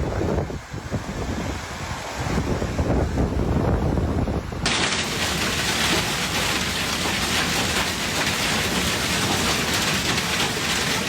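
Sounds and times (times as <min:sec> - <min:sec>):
heavy rain on hard surfaces: 0:04.6 - 0:11.0.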